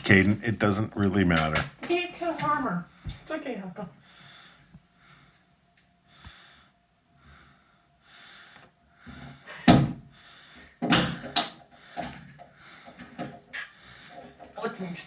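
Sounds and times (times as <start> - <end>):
hard object bumping with thuds: 9.6 - 10.1, 10.8 - 11.6.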